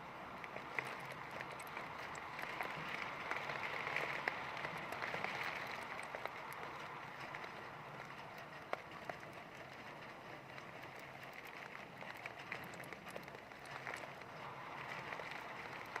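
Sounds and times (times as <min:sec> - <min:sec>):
heavy rain falling: 0:00.6 - 0:08.4.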